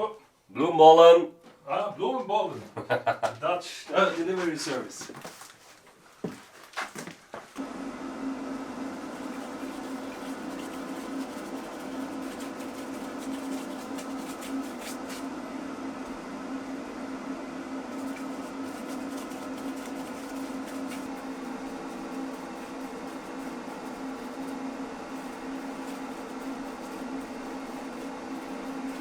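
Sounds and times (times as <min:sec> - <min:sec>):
machine hum with low drone: 0:07.6 - 0:29.0.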